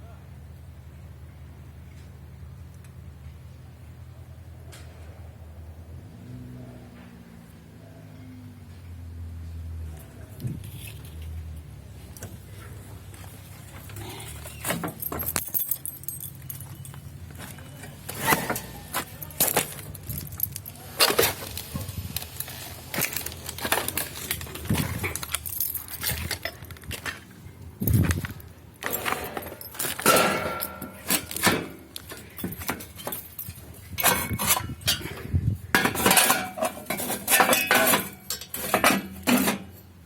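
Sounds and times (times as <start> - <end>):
metal pieces clanking: 14.4 - 17.0, 18.0 - 39.8.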